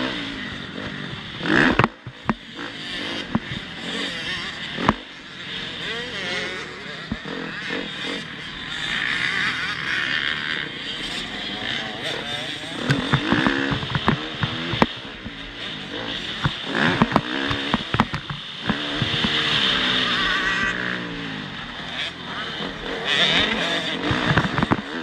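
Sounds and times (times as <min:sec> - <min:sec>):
motocross bike engine revving: 0:00.0 - 0:25.0
sharp knocks and clatter: 0:01.5 - 0:02.5, 0:03.2 - 0:03.7, 0:04.8 - 0:05.2, 0:12.8 - 0:15.4, 0:16.3 - 0:19.7, 0:24.0 - 0:25.0.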